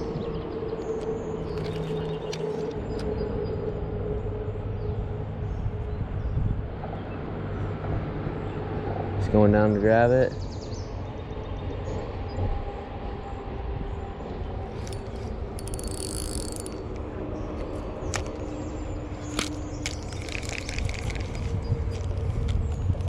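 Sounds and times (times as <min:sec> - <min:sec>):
wind: 0:00.0 - 0:23.0
fishing reel cranking: 0:14.8 - 0:17.0, 0:17.6 - 0:18.5, 0:19.2 - 0:22.6.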